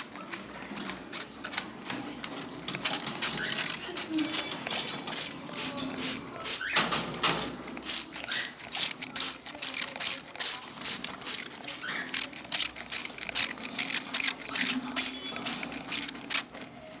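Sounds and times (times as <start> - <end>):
spray bottle squirting: 0.0 - 17.0.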